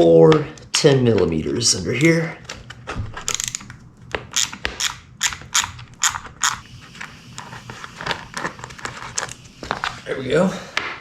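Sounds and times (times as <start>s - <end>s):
socket ratchet clicking: 3.3s - 6.6s.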